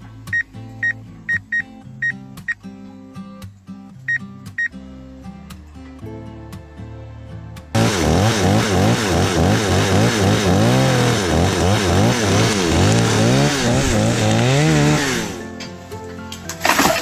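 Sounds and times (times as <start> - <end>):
chainsaw engine revving: 7.8 - 15.5.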